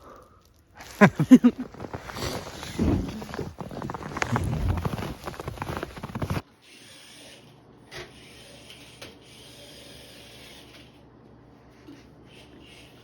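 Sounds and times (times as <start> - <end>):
scraping snow and ice off car: 0.8 - 6.4.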